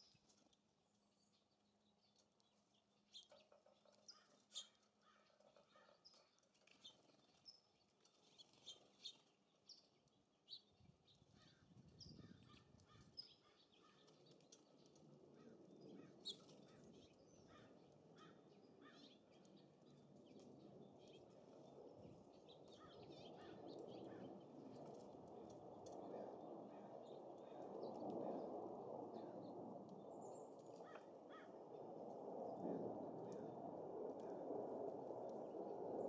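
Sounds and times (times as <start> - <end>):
gusting wind: 11.2 - 13.2, 21.7 - 36.0.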